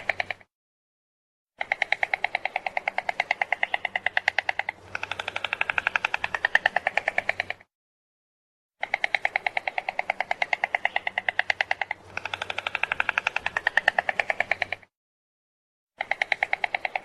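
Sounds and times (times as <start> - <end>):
stork clattering bill: 1.6 - 7.7, 8.8 - 14.9.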